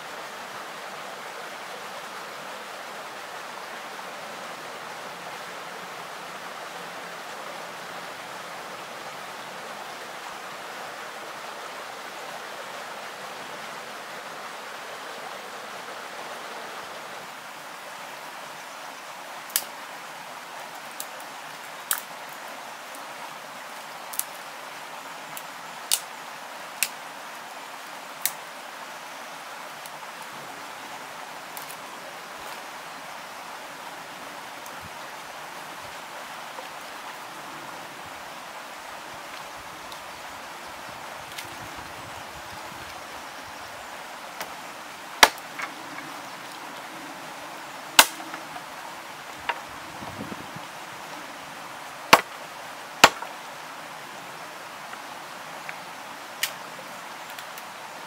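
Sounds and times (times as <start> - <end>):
sharp clicks or snaps: 48.0 - 48.4.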